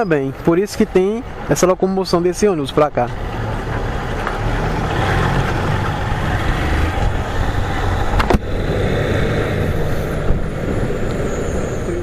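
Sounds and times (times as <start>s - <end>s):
motorcycle engine and road noise: 0.0s - 12.0s.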